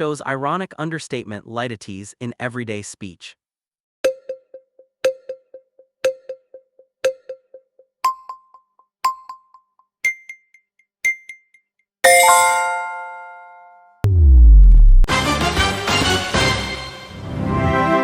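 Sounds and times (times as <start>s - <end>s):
bright ringing chime chord: 12.1s - 13.9s.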